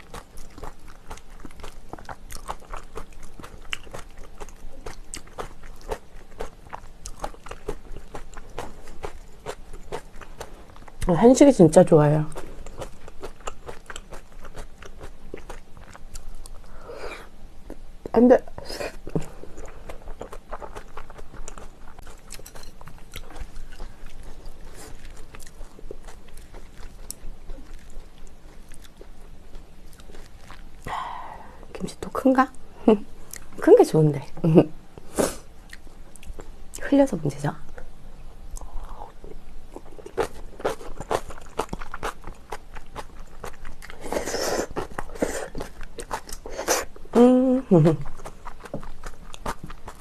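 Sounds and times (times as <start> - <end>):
food crunch: 0.0 - 11.1, 19.2 - 30.9, 39.7 - 46.8, 47.9 - 50.0
person chewing food: 0.0 - 11.1, 12.3 - 16.9, 18.9 - 31.1, 35.0 - 36.5, 37.8 - 47.2, 47.8 - 50.0.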